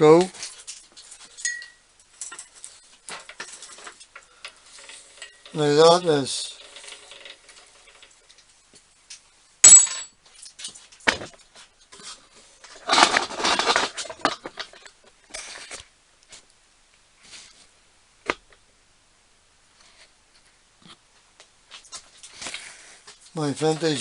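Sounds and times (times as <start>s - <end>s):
metal clink with ring: 1.4s - 1.8s, 9.6s - 10.1s
rattling scrape: 2.2s - 8.2s, 12.6s - 15.8s.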